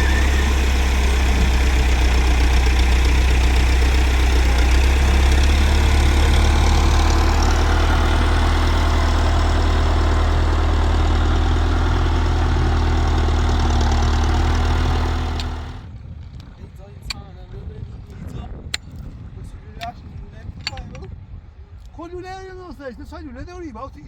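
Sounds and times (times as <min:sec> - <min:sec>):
tractor engine running: 0:00.0 - 0:16.3.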